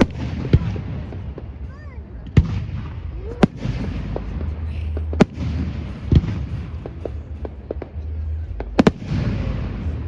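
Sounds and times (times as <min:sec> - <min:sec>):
firework shells bursting with bangs: 0:00.0 - 0:10.0
small firework pops: 0:02.2 - 0:04.4, 0:05.0 - 0:08.0.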